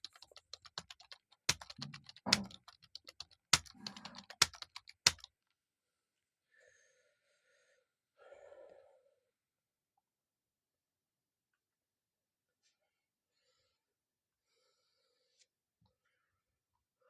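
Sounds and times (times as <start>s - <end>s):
keyboard key clicks: 0.0s - 5.3s.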